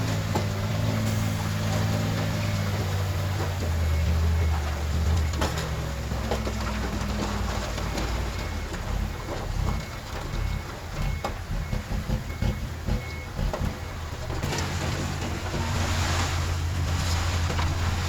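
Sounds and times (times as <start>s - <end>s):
heavy diesel engine under load: 0.0s - 18.0s.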